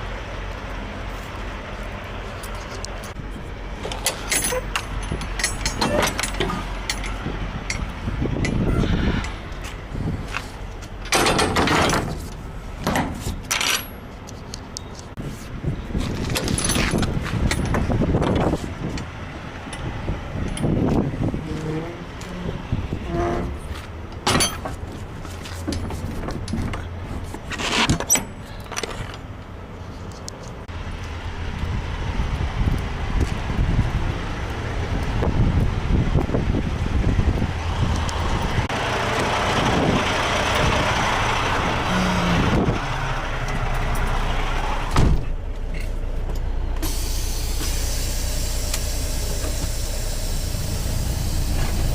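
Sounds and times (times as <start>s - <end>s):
diesel truck engine running: 0.0s - 14.2s, 30.6s - 51.9s.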